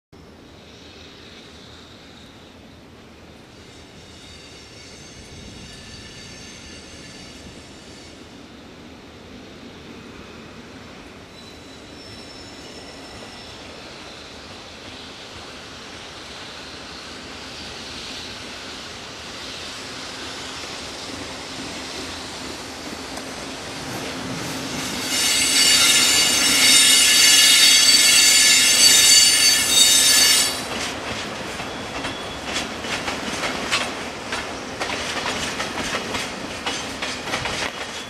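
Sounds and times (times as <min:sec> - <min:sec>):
freight train rolling: 0:00.2 - 0:38.0
high-pitched wheel squeal: 0:03.6 - 0:08.2, 0:11.3 - 0:13.7, 0:24.7 - 0:30.7.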